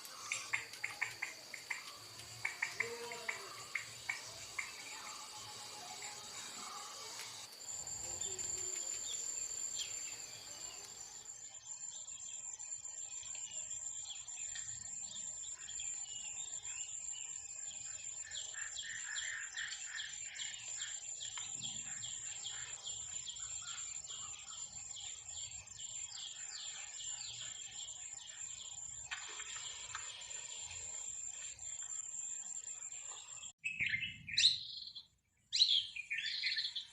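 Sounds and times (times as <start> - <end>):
high-pitched insect trill: 0.0 - 33.5
small birds chirping: 0.0 - 36.9.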